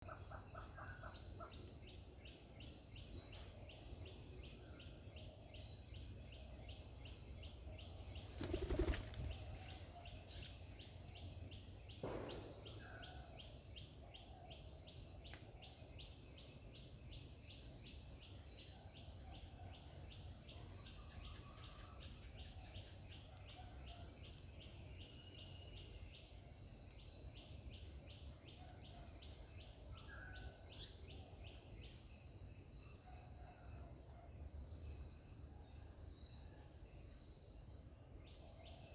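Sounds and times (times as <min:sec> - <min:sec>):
insect drone and trill: 0:00.0 - 0:38.9
rustle: 0:06.7 - 0:34.0.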